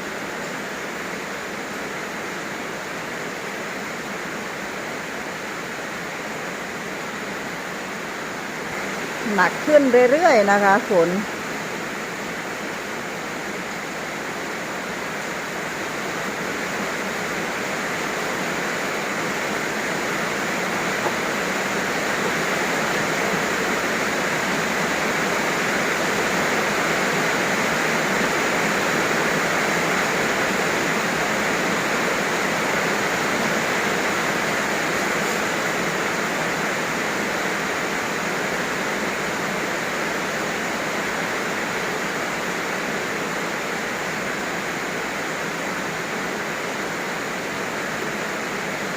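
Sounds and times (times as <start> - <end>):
heavy rain pouring: 0.0 - 48.9.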